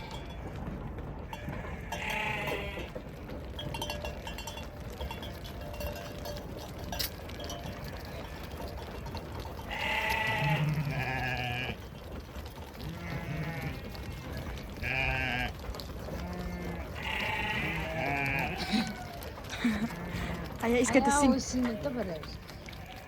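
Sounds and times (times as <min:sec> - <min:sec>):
sheep bleating: 0:01.4 - 0:03.0, 0:09.6 - 0:11.8, 0:12.8 - 0:22.0.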